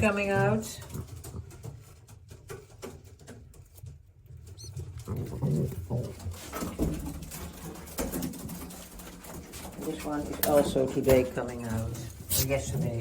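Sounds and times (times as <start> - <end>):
birds rustling and tapping: 0.0 - 13.0
pigeons cooing: 4.5 - 11.0.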